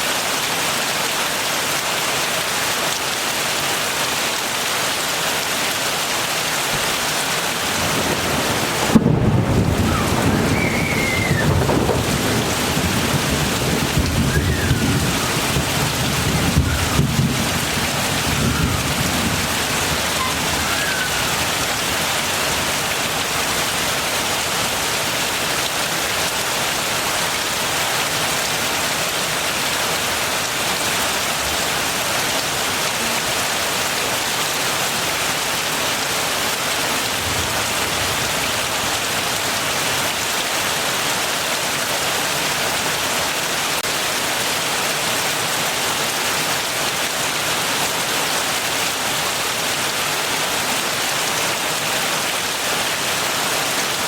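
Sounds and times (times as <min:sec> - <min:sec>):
heavy rain falling: 0:00.0 - 0:54.0
rolling thunderclap: 0:06.8 - 0:21.8.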